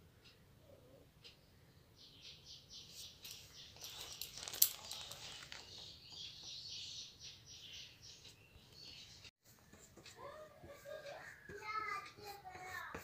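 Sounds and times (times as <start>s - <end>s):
small birds chirping: 0.2s - 9.7s.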